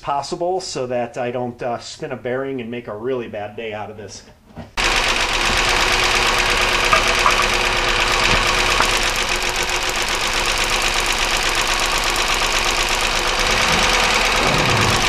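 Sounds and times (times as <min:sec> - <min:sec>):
car engine idling: 0:04.8 - 0:15.0
engine knocking: 0:04.8 - 0:15.0.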